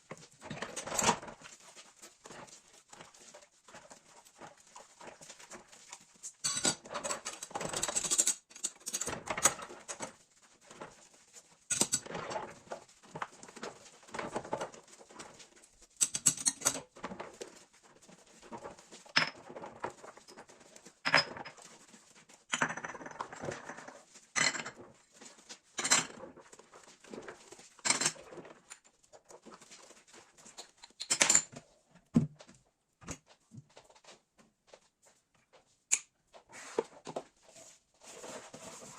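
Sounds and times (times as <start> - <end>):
kitchen items knocking and clinking: 5.0 - 11.0, 11.7 - 21.9, 22.5 - 25.0, 25.8 - 29.6, 30.5 - 33.7.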